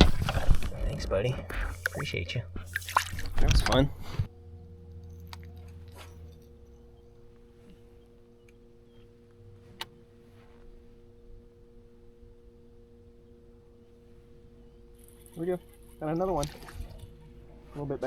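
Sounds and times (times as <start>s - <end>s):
deeper hum: 0.0s - 18.0s
faint electric hum: 0.0s - 18.0s.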